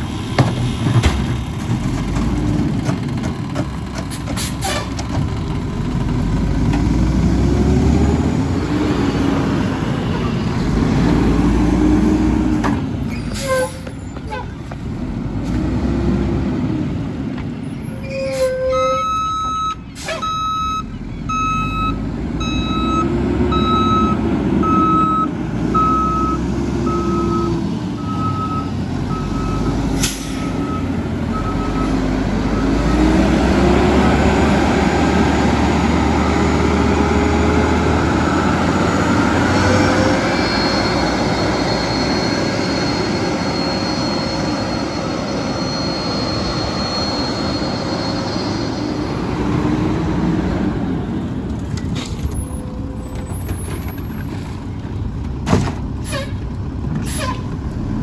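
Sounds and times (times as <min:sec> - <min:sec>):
truck engine revving: 0:00.0 - 0:13.4, 0:14.0 - 0:17.6, 0:19.2 - 0:53.7
reversing alarm beeps: 0:18.2 - 0:33.2, 0:38.0 - 0:49.5
steady high whine: 0:40.5 - 0:49.2.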